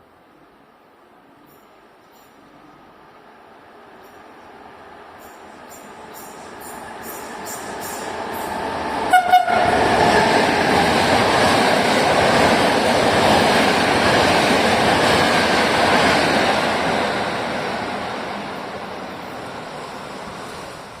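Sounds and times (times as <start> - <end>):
train passing: 0.6 - 21.0
train horn toots: 9.1 - 9.9.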